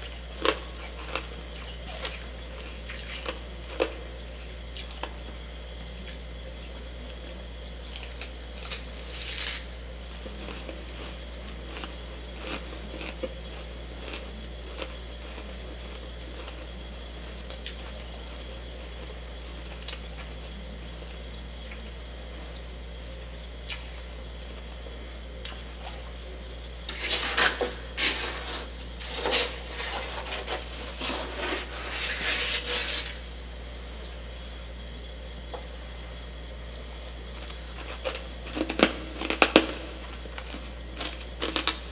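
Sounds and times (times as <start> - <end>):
frost being chewed: 0.0 - 6.5, 10.2 - 22.0, 37.0 - 41.8
steady low hum: 0.0 - 41.9.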